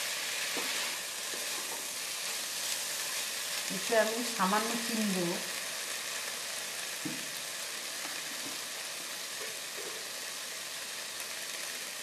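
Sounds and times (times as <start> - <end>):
beans sizzling in oil: 0.0 - 12.0
faint knock: 7.0 - 7.3.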